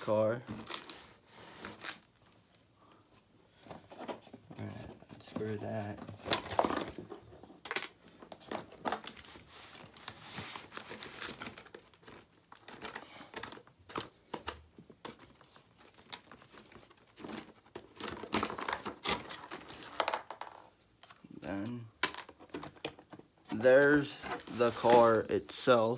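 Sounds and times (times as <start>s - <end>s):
packaging crinkling and rustling: 0.5s - 2.6s, 5.2s - 21.2s.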